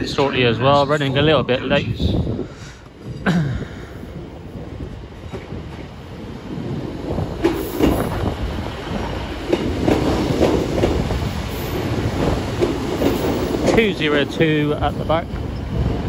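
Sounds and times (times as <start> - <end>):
train wheels clicking over rail joints: 6.6 - 15.9.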